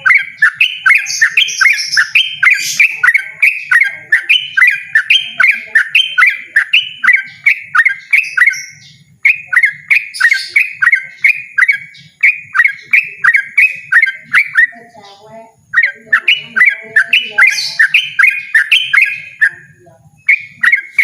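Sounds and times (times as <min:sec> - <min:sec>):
bird singing repeated notes: 0:00.0 - 0:21.0.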